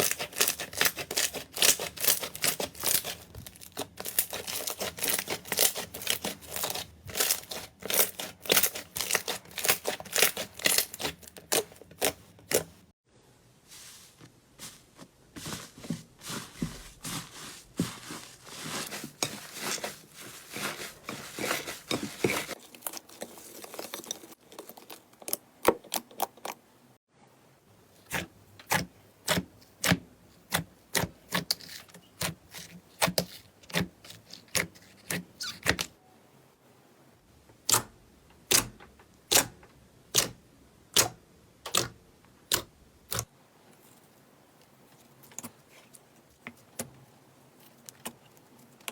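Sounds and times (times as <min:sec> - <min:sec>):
slime crackling and popping: 0:00.0 - 0:12.6.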